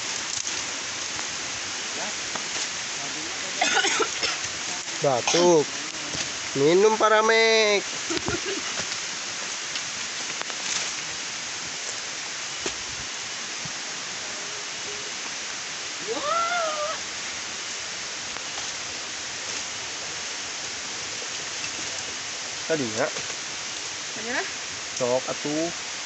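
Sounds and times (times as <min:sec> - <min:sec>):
rain on foliage: 0:00.0 - 0:26.0
rising and falling vocal call: 0:16.0 - 0:17.0.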